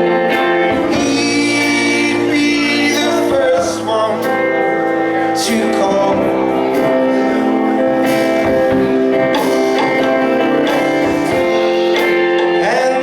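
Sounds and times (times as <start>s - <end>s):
guitar strumming: 0.0s - 13.0s
live band playing instrumental: 0.0s - 13.0s.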